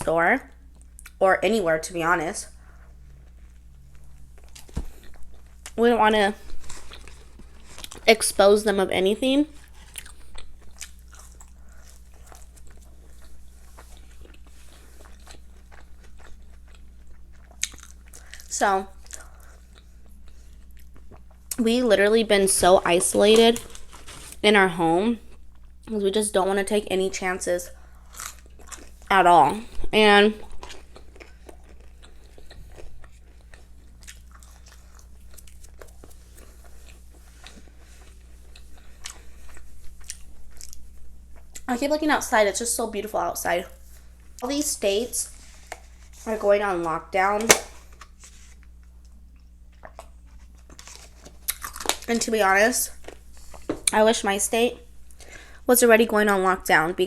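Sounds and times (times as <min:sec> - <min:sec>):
steady low hum: 0:00.0 - 0:57.0
person chewing food: 0:00.5 - 0:01.2, 0:02.5 - 0:05.8, 0:06.4 - 0:08.2, 0:09.5 - 0:21.6, 0:27.7 - 0:41.7, 0:47.8 - 0:52.2.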